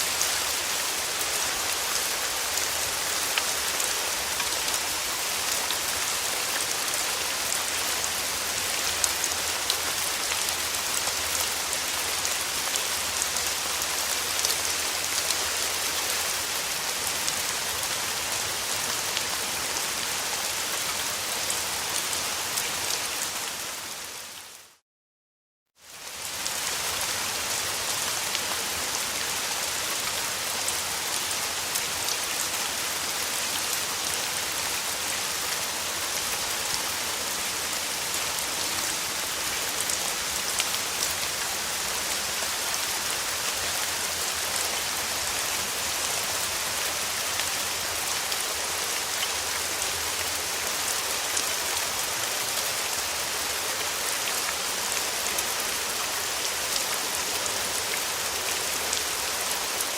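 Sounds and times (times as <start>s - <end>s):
rain pattering on a surface: 0.0s - 24.7s, 25.8s - 59.9s.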